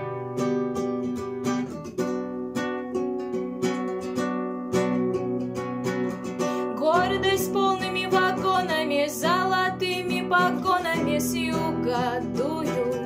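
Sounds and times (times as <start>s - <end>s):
acoustic guitar strumming: 0.0s - 13.0s
person singing: 6.6s - 13.0s.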